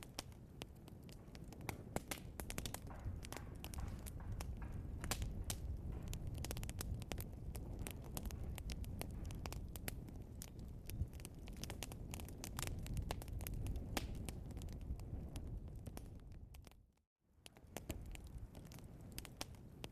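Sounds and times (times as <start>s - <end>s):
burning logs crackling: 0.0s - 19.9s
low noise of flames: 0.0s - 19.9s.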